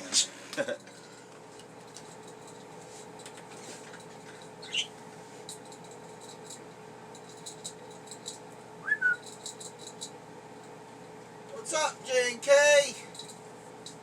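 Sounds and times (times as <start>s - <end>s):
steady background hum: 0.0s - 14.0s
budgerigars chirping and clicking: 4.6s - 4.9s.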